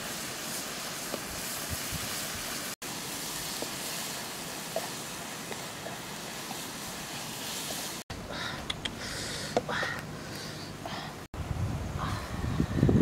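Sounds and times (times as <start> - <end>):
food sizzling in a wok: 0.0 - 8.0.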